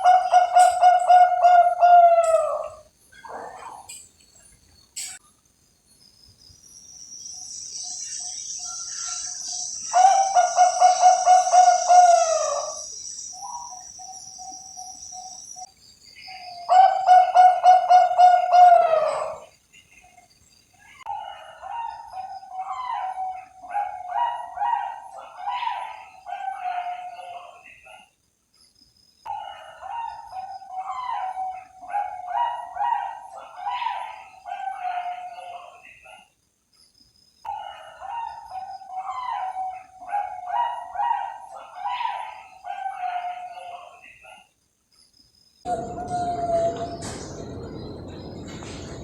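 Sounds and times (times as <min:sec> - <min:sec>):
dove cooing: 0:00.0 - 0:04.0, 0:09.9 - 0:13.8, 0:16.7 - 0:19.5, 0:45.7 - 0:49.0.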